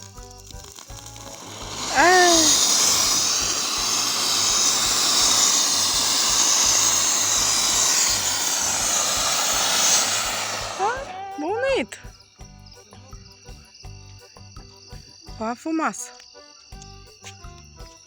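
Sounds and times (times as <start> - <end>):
faint background music: 0.0 - 5.3, 10.8 - 18.0
firework fountain hissing: 0.0 - 11.8
firework whistling chirp: 0.0 - 11.8.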